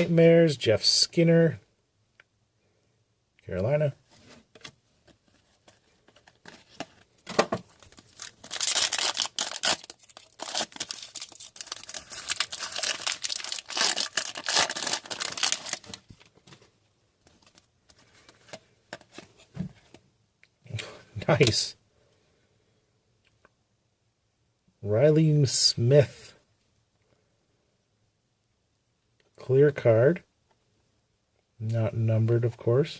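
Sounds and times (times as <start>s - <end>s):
cards handled with clicks and knocks: 4.2s - 20.0s
foil wrapper tearing and crinkling: 7.8s - 16.1s.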